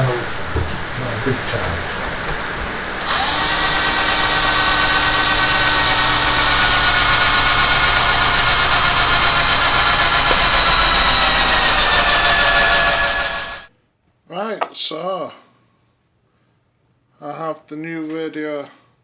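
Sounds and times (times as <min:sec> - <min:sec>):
power drill motor whine: 0:01.5 - 0:13.7.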